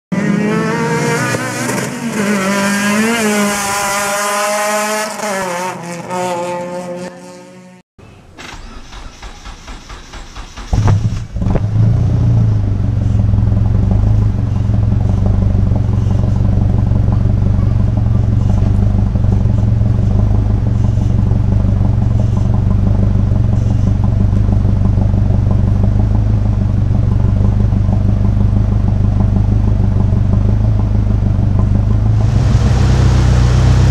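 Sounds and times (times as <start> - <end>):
car engine cranking and idling: 8.0 - 33.9.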